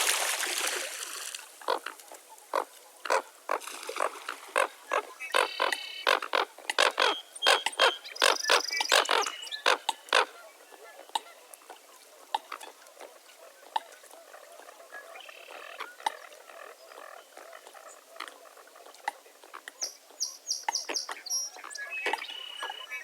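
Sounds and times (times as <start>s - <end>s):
frogs croaking and clicking: 1.6s - 1.9s, 5.3s - 10.3s
bird calls: 4.6s - 12.8s, 13.4s - 23.0s.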